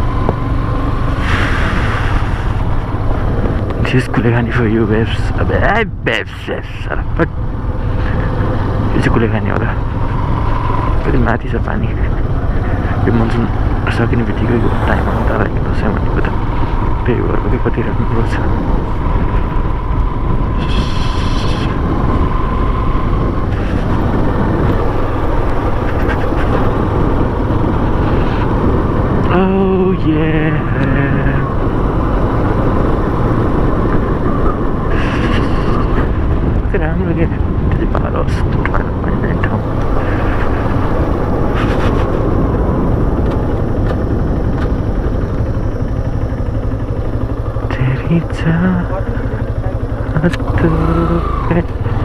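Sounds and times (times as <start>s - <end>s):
wind rush on microphone: 0.0s - 6.2s, 7.0s - 52.0s
motorcycle engine: 0.0s - 52.0s.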